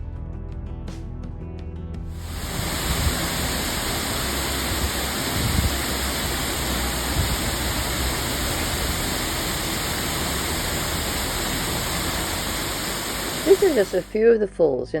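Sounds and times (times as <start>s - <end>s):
waterfall rushing: 2.2s - 14.1s.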